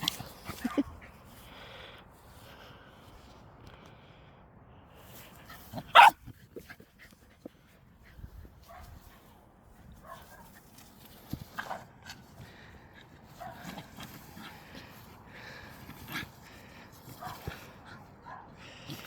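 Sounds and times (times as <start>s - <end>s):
dog barking: 5.9s - 6.2s.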